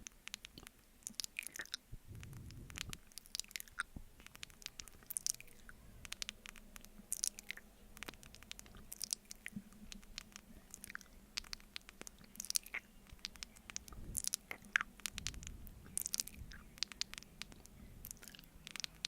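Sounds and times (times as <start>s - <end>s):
mouth eating sounds: 0.3s - 19.0s.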